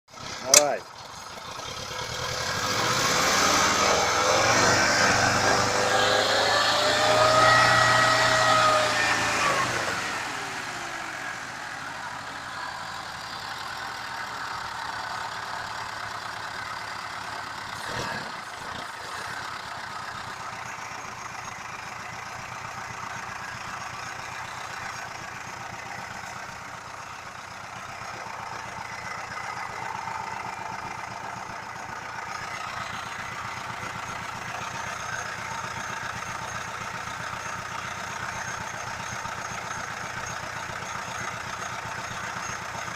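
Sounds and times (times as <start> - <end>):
car engine revving and idling: 0.1 - 42.9.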